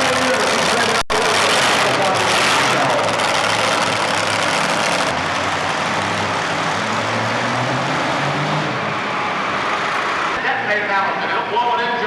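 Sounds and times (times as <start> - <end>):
tractor engine running at high revs: 0.0 - 8.9.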